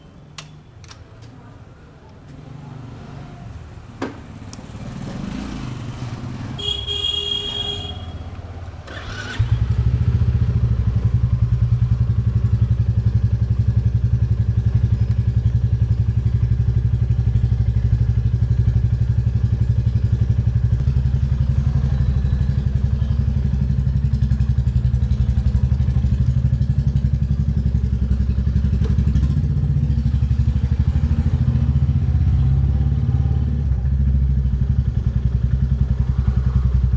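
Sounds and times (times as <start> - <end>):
clicks: 0.3 - 2.4
motorcycle engine idling: 4.0 - 36.9.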